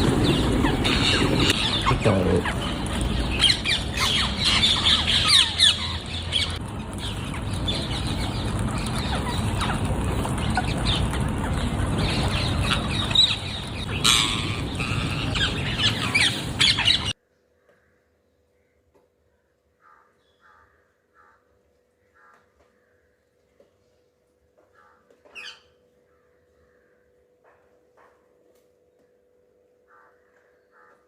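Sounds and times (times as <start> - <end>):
parrots squawking: 0.0 - 17.2.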